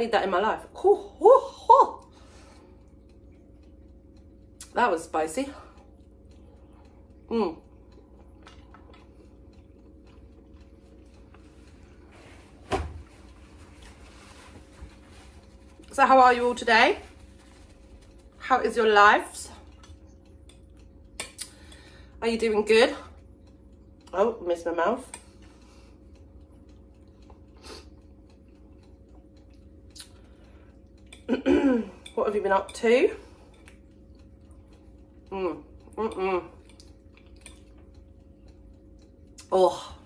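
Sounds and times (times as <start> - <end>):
person chewing with mouth clicks: 2.0 - 4.8, 5.7 - 12.2, 19.6 - 22.0, 23.1 - 24.2, 25.1 - 31.4, 33.5 - 39.6.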